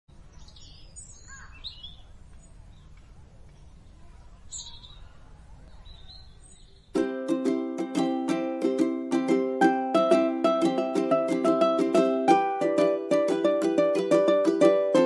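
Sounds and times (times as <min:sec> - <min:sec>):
birds chirping: 0:00.1 - 0:07.0.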